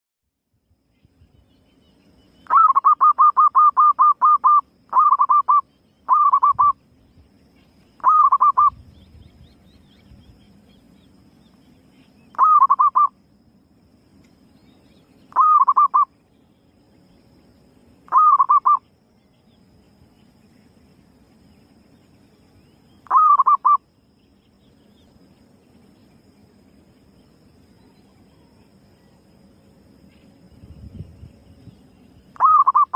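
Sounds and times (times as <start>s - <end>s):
dove cooing rapidly: 2.5s - 6.8s, 8.0s - 8.8s, 12.4s - 13.1s, 15.3s - 16.1s, 18.1s - 18.8s, 23.1s - 23.8s, 32.4s - 32.9s.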